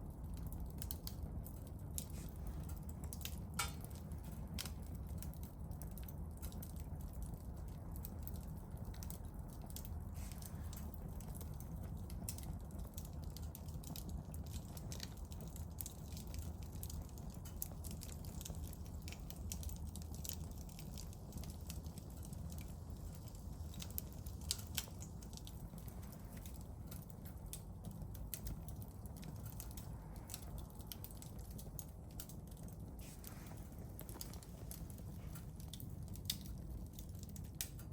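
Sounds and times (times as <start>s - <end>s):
campfire crackling: 0.0s - 37.9s
low steady rumble: 0.0s - 37.9s.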